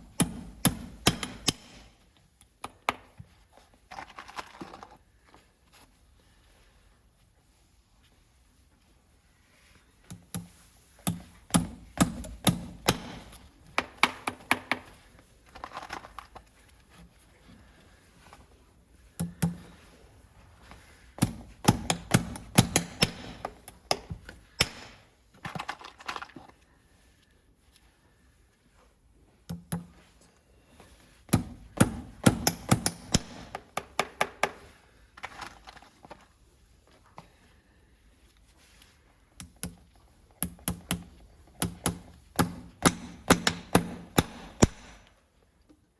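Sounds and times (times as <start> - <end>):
hammer striking: 0.1 - 1.9, 11.1 - 14.8, 21.2 - 25.0, 31.3 - 34.6, 41.6 - 45.0
hammer striking metal: 0.2 - 1.9, 21.2 - 24.0, 24.6 - 25.0.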